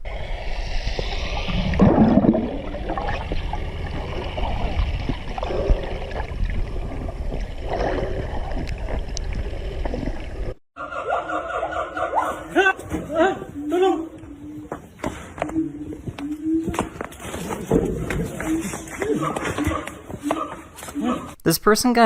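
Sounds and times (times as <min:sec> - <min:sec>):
low rumble: 0:00.0 - 0:10.6
water gurgling and sloshing: 0:00.0 - 0:10.6.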